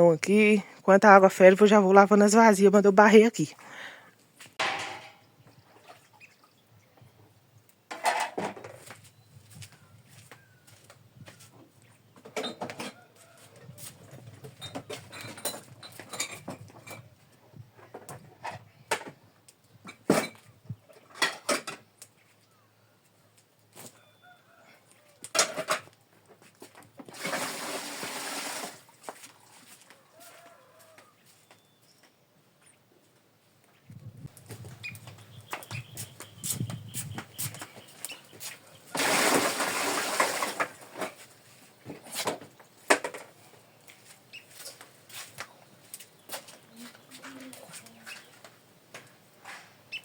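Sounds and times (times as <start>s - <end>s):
pots and dishes clattering: 4.6s - 5.2s
pouring water: 27.1s - 29.0s, 39.0s - 40.8s.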